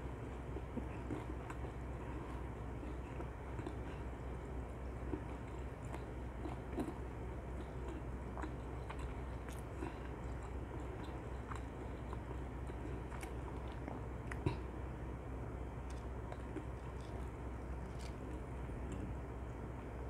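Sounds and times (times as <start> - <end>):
chewing crispy food: 0.0 - 15.0, 15.6 - 19.2
low steady hum: 0.0 - 20.0
small crunches: 15.8 - 18.4.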